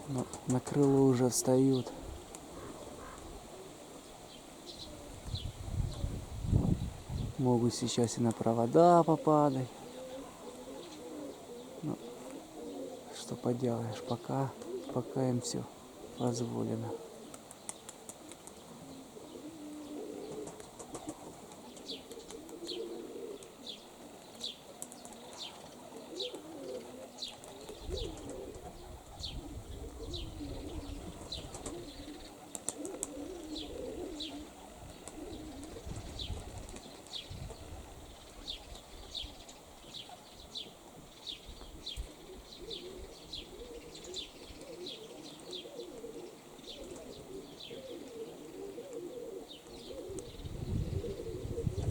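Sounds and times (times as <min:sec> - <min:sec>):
pigeons cooing: 0:00.0 - 0:51.9
wind gusts buffeting microphone: 0:05.1 - 0:07.5, 0:27.8 - 0:32.1, 0:34.8 - 0:38.2, 0:50.2 - 0:51.9.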